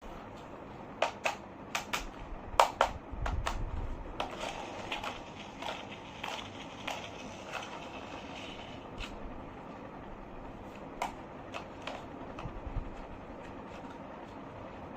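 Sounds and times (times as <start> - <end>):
plastic toy vehicles clicking: 4.2 - 9.2.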